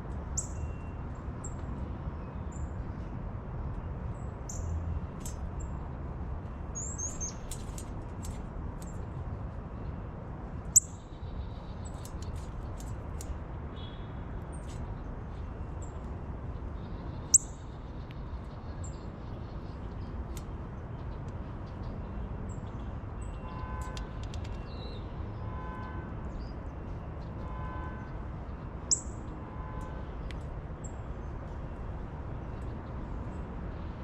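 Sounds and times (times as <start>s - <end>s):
small birds chirping: 6.8s - 9.1s.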